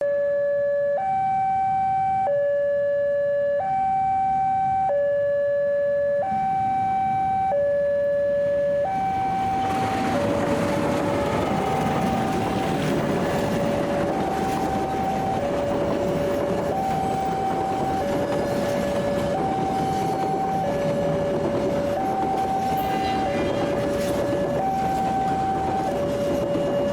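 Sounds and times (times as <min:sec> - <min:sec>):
level-crossing two-tone alarm: 0:00.0 - 0:26.9
train rumble: 0:08.4 - 0:26.9.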